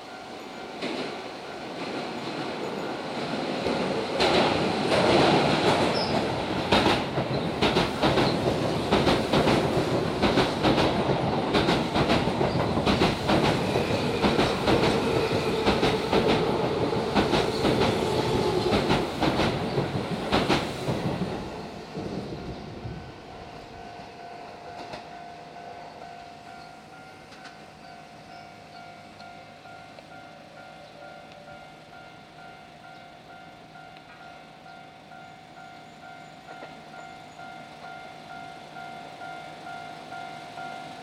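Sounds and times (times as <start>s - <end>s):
train rumble: 0.0s - 41.0s
train wheels clacking over rail joints: 3.4s - 22.3s.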